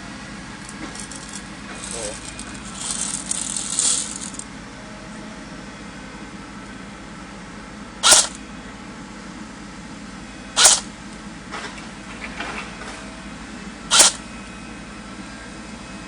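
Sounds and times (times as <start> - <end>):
airsoft rifle shots: 8.0 - 8.4, 10.6 - 10.9, 13.9 - 14.2.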